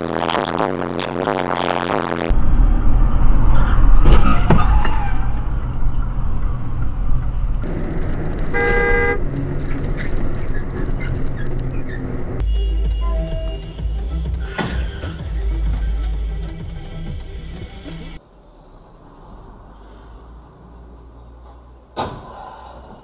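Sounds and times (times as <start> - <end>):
car road and engine rumble: 1.7 - 23.0
car horn: 8.5 - 9.3, 12.4 - 15.2.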